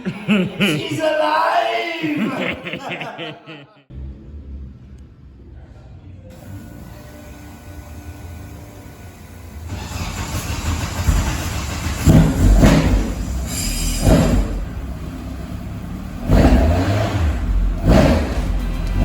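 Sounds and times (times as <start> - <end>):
race engine revving: 9.7 - 19.0.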